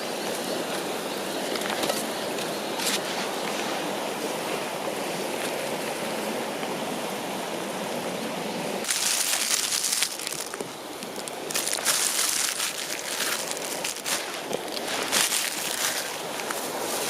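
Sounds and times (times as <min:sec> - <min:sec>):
river rushing: 0:00.0 - 0:17.0
hissing crackling with ticks: 0:08.8 - 0:16.7.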